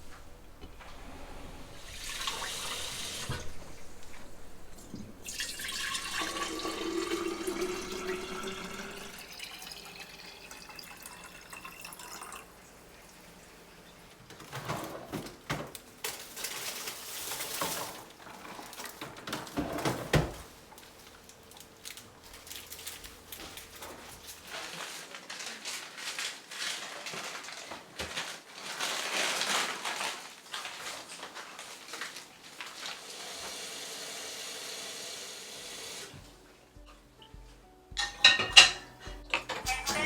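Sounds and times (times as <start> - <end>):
dishes clattering: 0.0 - 9.8, 38.0 - 40.0
tap water running into sink: 1.7 - 13.0.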